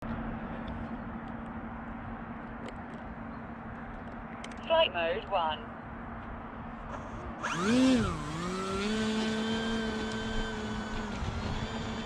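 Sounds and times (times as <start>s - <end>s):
electric motor and propeller whine: 6.5s - 12.0s.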